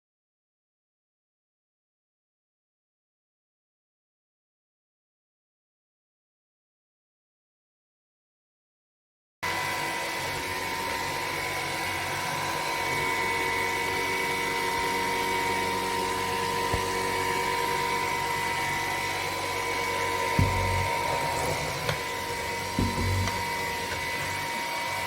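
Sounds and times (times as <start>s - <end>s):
cordless vacuum running: 9.6s - 25.0s
short knock: 20.4s - 22.1s, 22.8s - 24.0s.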